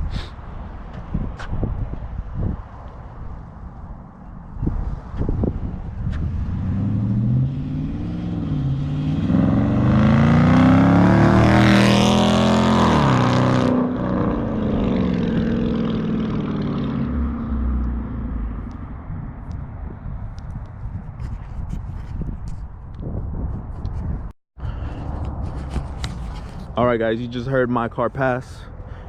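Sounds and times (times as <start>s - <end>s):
car accelerating past: 6.1s - 18.6s.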